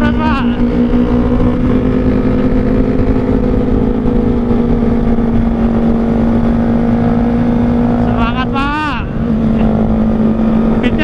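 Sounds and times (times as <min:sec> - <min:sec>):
motorcycle engine at high rpm: 0:00.0 - 0:11.0.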